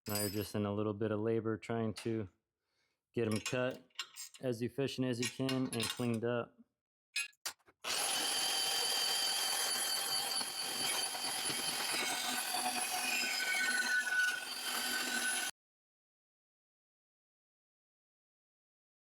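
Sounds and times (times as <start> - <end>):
bandsaw cutting metal tubing: 7.8 - 15.5.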